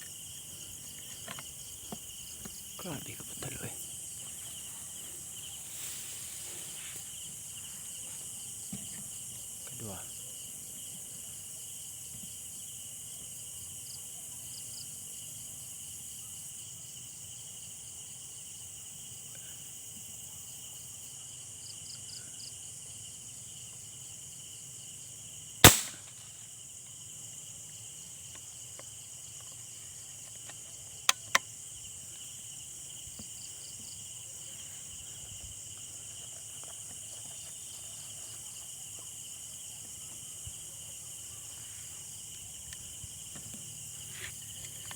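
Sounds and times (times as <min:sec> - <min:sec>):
crickets chirping: 0:00.0 - 0:44.9
gunshot: 0:25.6 - 0:26.4.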